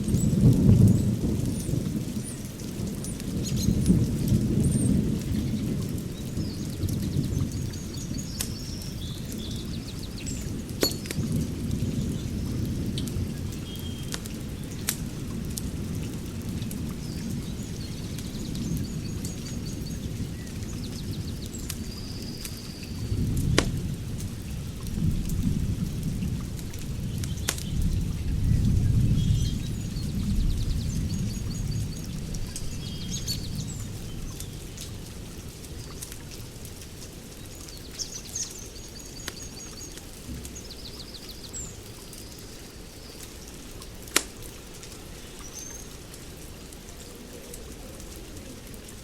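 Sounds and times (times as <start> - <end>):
wood fire crackling: 0.0 - 28.1, 33.8 - 49.0
birds chirping: 4.7 - 14.8
sharp pops: 23.5 - 23.8.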